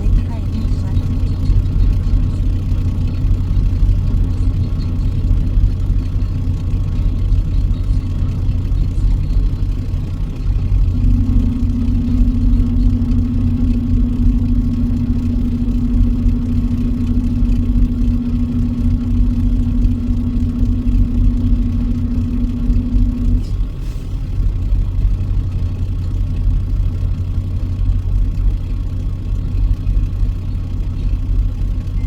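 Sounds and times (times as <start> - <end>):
steady higher hum: 0.0 - 23.6
truck engine droning: 0.0 - 32.0.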